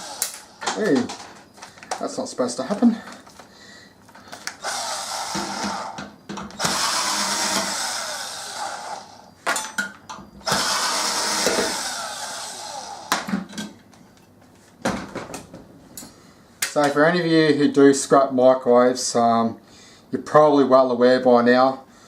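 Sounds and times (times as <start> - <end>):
electric power tool motor: 0.0 - 0.6, 4.6 - 6.0, 6.6 - 9.3, 10.4 - 13.2.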